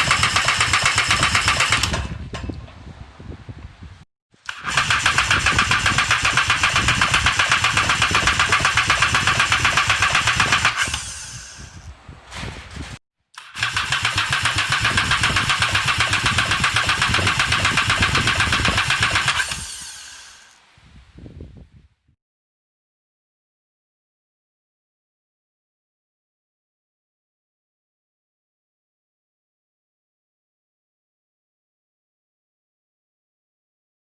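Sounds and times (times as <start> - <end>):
engine cranking on starter: 0.0 - 2.3, 4.5 - 11.8, 13.4 - 20.6.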